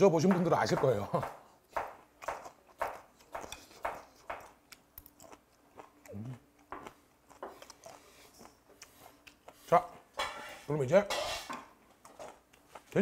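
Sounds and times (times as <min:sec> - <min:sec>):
wet chewing sounds: 0:01.7 - 0:09.9.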